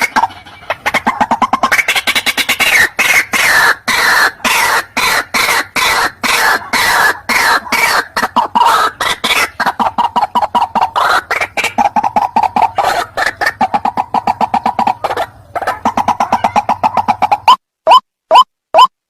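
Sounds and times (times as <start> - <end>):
bird clucking notes: 0.0 - 18.9
bird harsh rasping calls: 0.0 - 18.9.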